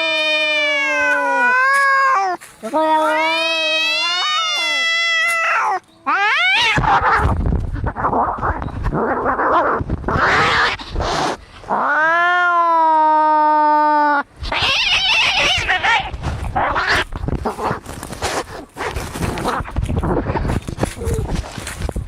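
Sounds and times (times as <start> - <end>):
cat yowling: 0.0 - 7.3, 11.7 - 17.1
cats screeching and spitting: 0.0 - 21.5.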